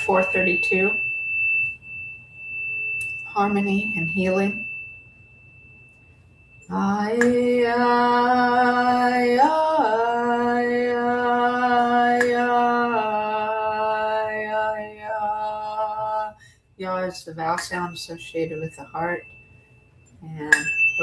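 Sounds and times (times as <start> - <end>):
high tuning-fork tone: 0.0 - 16.3.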